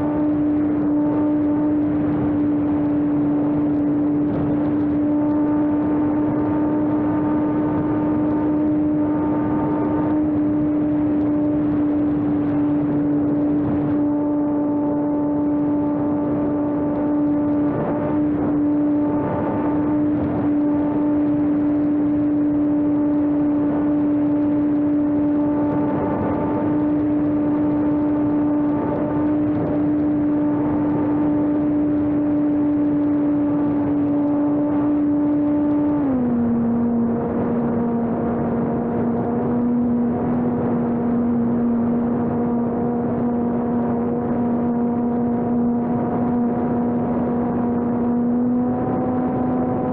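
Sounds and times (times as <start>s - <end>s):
electric motor whine: 0.0s - 49.9s.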